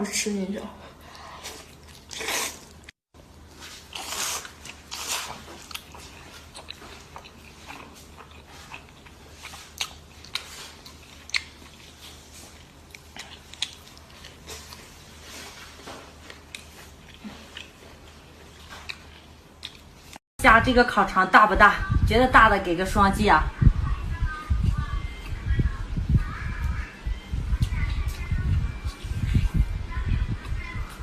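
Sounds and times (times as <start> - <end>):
chewing with clicks and smacks: 3.9 - 20.2.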